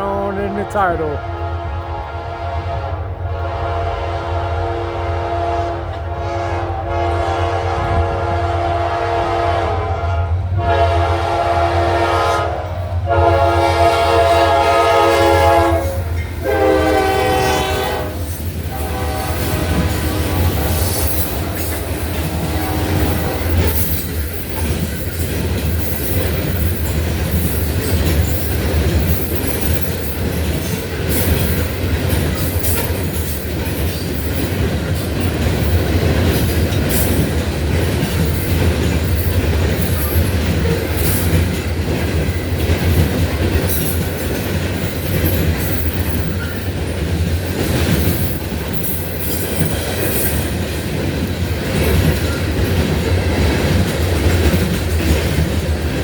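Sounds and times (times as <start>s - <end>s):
locomotive horn: 0.0s - 23.7s
train cars rumbling: 0.0s - 56.0s
wheels clicking over rail joints: 15.5s - 56.0s.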